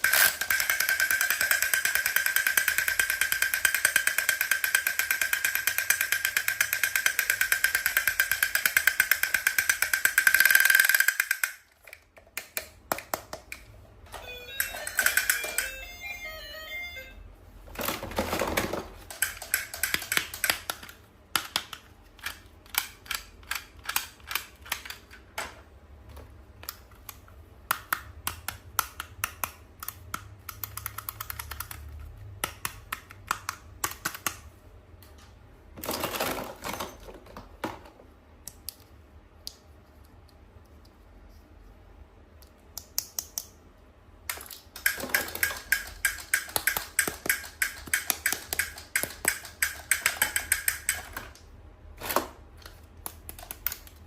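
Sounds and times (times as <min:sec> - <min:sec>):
plastic toys clicking and tapping: 0:00.0 - 0:15.9, 0:17.8 - 0:25.6, 0:26.5 - 0:34.5, 0:44.2 - 0:51.4, 0:52.6 - 0:54.0.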